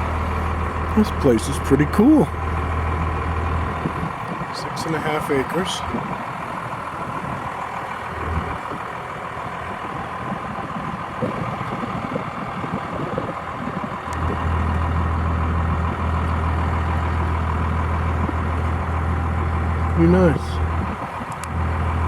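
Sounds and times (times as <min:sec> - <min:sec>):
low drone: 0:00.0 - 0:04.3
truck engine from inside cab: 0:00.0 - 0:22.0.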